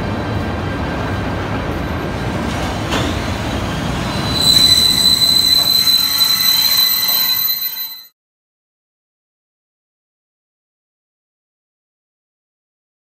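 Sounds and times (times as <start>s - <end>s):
train rumbling: 0.0s - 8.1s
high-pitched wheel squeal: 3.9s - 8.1s.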